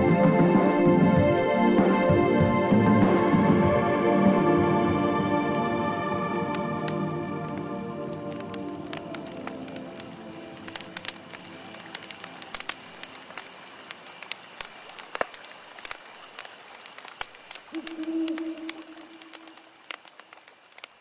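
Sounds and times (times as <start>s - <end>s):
music: 0.0s - 12.7s
campfire crackling and popping: 0.0s - 21.0s.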